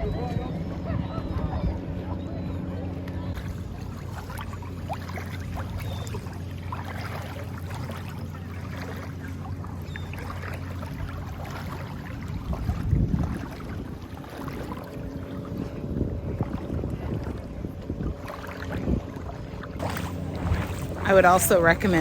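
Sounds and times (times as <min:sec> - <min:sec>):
wind buffeting microphone: 0:00.0 - 0:04.2, 0:10.9 - 0:22.0
distant motor humming: 0:00.0 - 0:12.5, 0:13.9 - 0:22.0.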